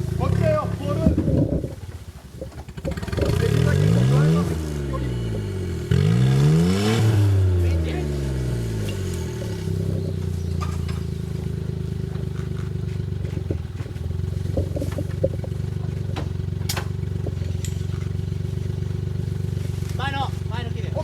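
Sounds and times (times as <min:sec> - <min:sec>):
small car engine running: 0:00.0 - 0:21.0
sharp clicks and knocks: 0:10.6 - 0:11.1, 0:12.0 - 0:18.2.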